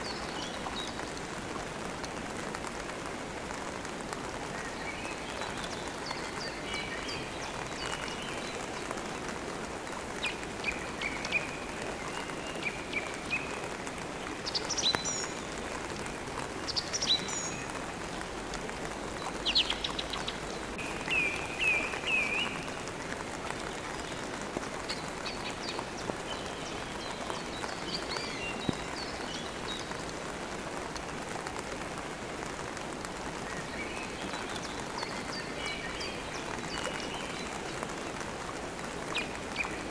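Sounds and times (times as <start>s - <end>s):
steady rain: 0.0s - 39.9s
songbirds twittering: 10.1s - 31.3s, 33.3s - 39.9s.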